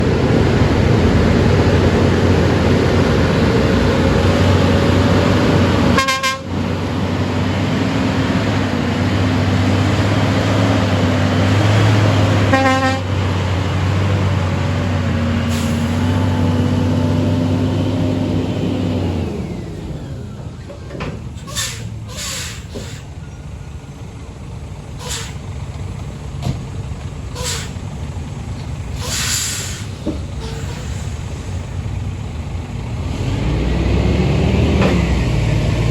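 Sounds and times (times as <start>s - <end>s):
truck diesel engine running: 0.0s - 35.9s
truck horn blasts: 5.9s - 6.6s, 12.4s - 13.2s.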